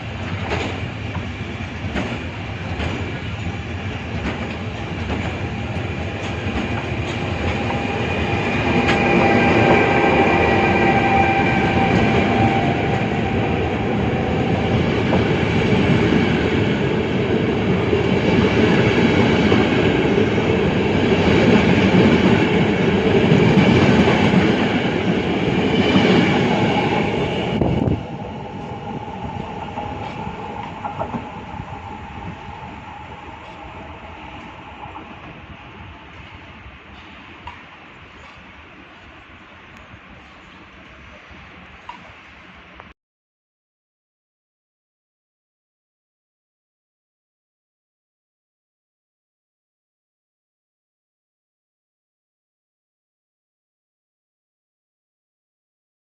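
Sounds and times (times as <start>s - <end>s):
train rumbling past: 0.0s - 42.9s.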